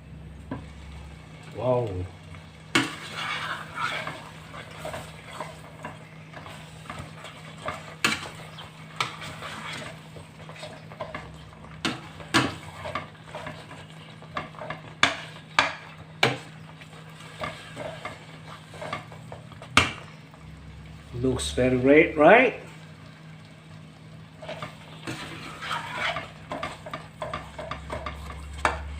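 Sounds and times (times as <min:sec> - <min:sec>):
food sizzling: 0:00.0 - 0:28.9
spoon scraping through food: 0:02.8 - 0:19.4, 0:24.4 - 0:28.9.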